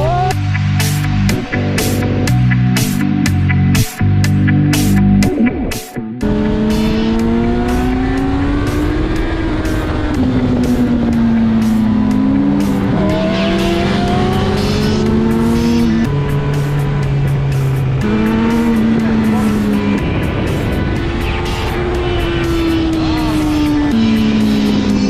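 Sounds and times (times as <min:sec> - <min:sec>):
music with steady beat: 0:00.0 - 0:25.0
motorcycle engine running: 0:06.2 - 0:25.0.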